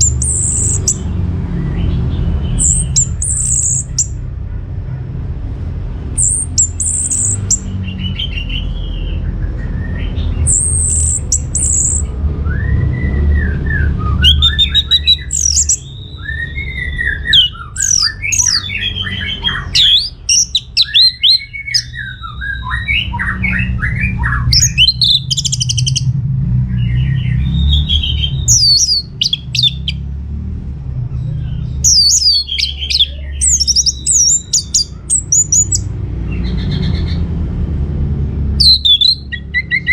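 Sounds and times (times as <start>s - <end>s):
bird singing whistled song: 0.0s - 4.2s, 6.2s - 26.1s, 26.7s - 30.0s, 31.4s - 37.2s, 38.6s - 39.9s
steady low rumble: 0.0s - 39.9s.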